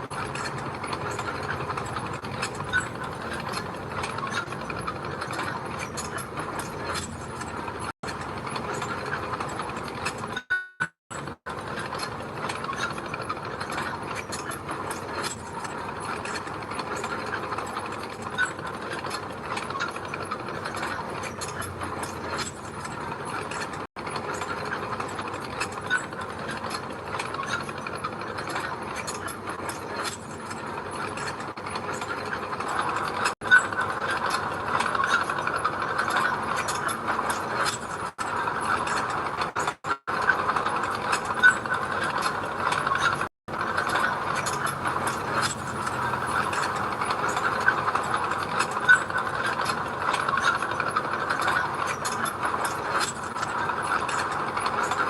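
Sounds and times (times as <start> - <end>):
crawler tracks clanking: 0.0 - 10.4, 11.1 - 55.0
bulldozer engine running: 43.5 - 49.0.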